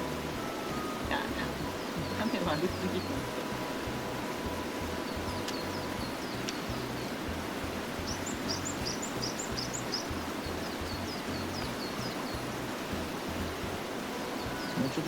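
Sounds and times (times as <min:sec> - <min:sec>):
small birds chirping: 0:00.0 - 0:15.0
steady background hiss: 0:00.0 - 0:15.0.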